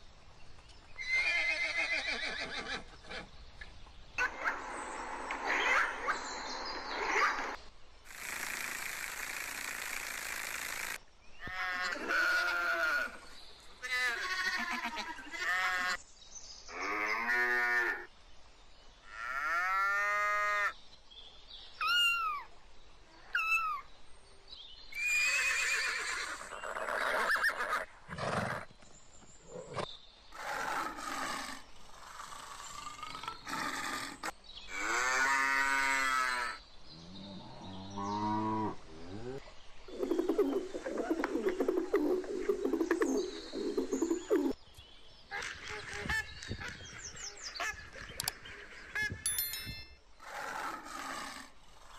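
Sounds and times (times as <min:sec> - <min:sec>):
pigeons cooing: 0:39.1 - 0:44.6.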